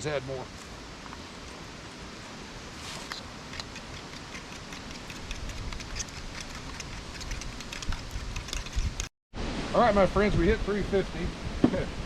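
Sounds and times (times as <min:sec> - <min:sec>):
fork clicking against bowl: 0:03.5 - 0:09.1.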